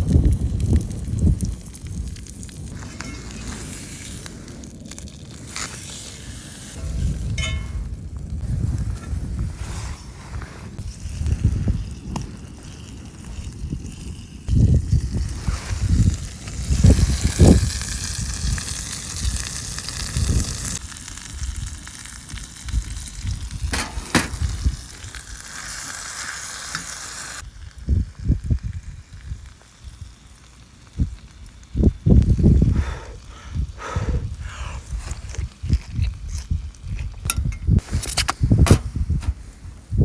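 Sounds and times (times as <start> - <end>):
meat sizzling in a skillet: 10.8 - 32.4.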